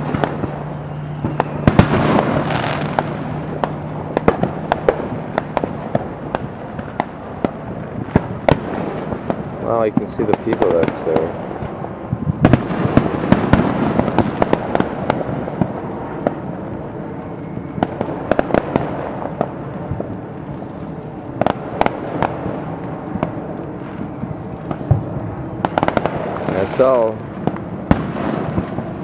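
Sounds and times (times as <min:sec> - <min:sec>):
firecracker pops: 0:00.0 - 0:16.4, 0:24.6 - 0:29.0
firework fountain hissing and crackling: 0:00.0 - 0:29.0.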